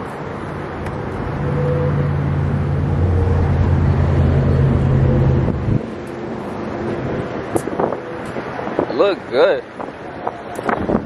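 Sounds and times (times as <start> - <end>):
vehicle engine running: 0.2 - 8.4
wind on microphone: 0.9 - 11.0.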